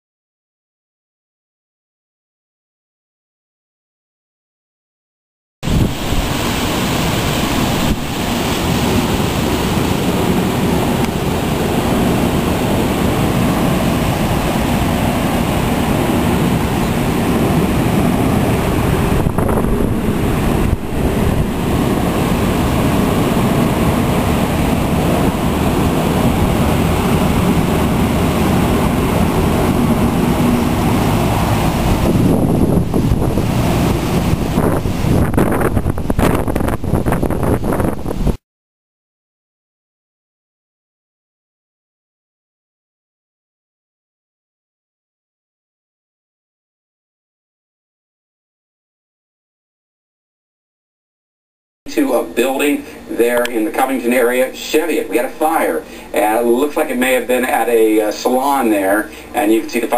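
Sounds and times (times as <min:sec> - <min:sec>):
wind blowing over microphone: 0:05.6 - 0:38.4.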